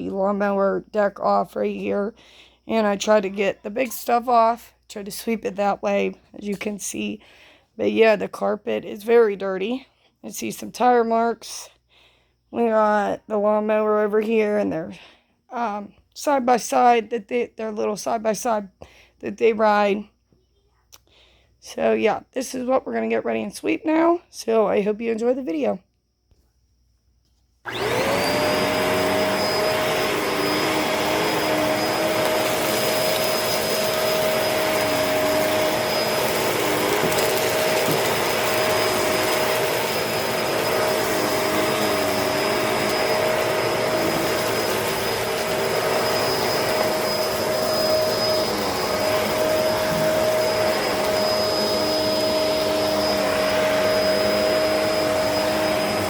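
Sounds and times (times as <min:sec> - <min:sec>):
vacuum cleaner motor whine: 0:27.6 - 0:56.0.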